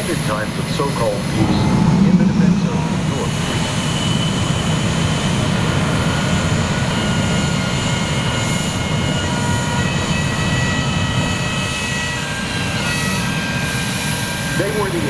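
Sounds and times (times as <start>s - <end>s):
jet engines running: 0.0s - 15.0s
high whining tones: 1.2s - 7.0s.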